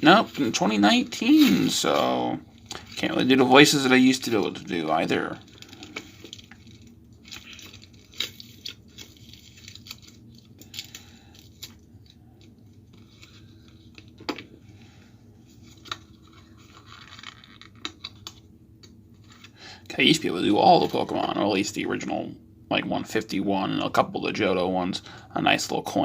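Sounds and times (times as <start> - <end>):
plastic wrappers crinkling and tearing: 0.1 - 14.4, 15.6 - 18.5.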